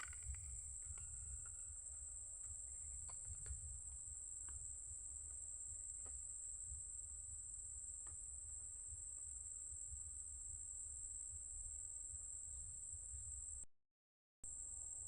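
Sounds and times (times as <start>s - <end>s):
crickets chirping: 0.0s - 13.6s.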